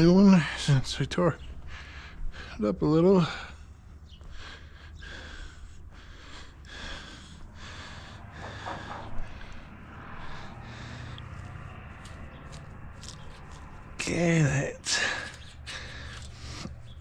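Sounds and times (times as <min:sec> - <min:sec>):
rustling scraping handling noise: 0:11.9 - 0:14.0, 0:15.1 - 0:16.9.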